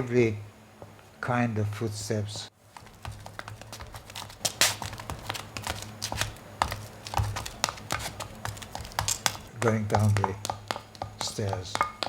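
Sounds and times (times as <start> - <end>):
steady low hum: 0.0 - 12.0
footsteps taps and scuffs: 2.5 - 12.0.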